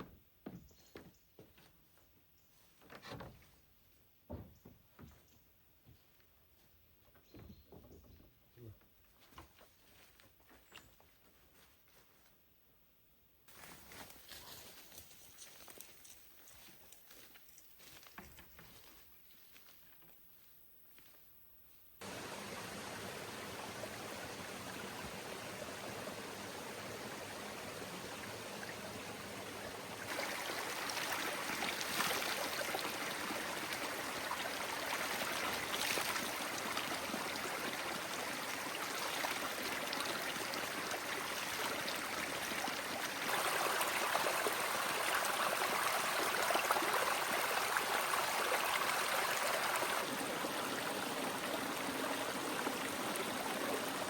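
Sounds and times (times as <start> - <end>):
heavy rain rushing: 22.0 - 32.0.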